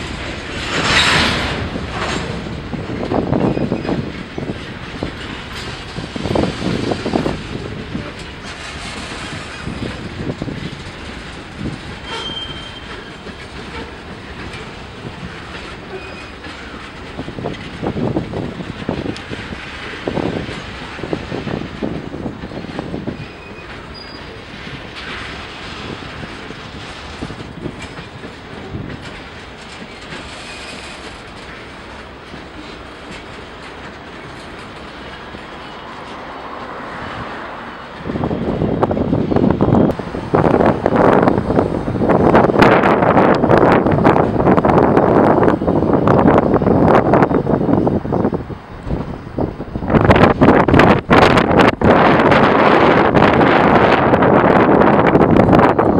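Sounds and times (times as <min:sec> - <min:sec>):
wind gusts on microphone: 0:00.0 - 0:30.4, 0:31.0 - 0:55.9
train wheels knocking on rail joints: 0:00.0 - 0:37.4
high wheel squeal: 0:12.0 - 0:14.0, 0:23.2 - 0:24.4.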